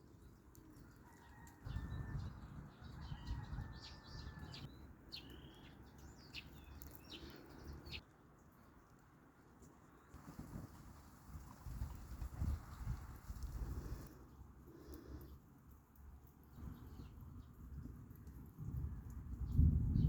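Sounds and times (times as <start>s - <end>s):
birds chirping: 1.7s - 8.0s.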